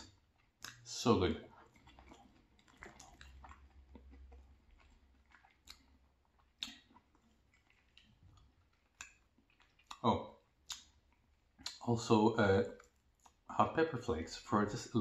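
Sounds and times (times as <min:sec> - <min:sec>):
quiet chewing: 0:00.0 - 0:11.9, 0:12.6 - 0:13.5
mouth clicks: 0:06.5 - 0:07.1, 0:08.9 - 0:11.0.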